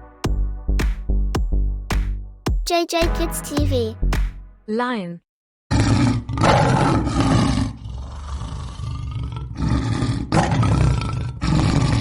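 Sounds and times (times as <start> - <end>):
lion roaring: 5.7 - 12.0.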